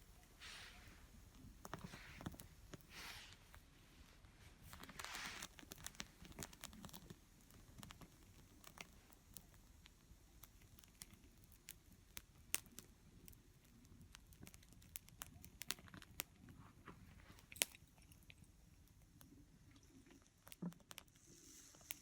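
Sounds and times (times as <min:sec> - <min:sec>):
small wood fire crackling: 0:00.0 - 0:22.0
fire hissing: 0:00.1 - 0:06.7, 0:21.1 - 0:22.0.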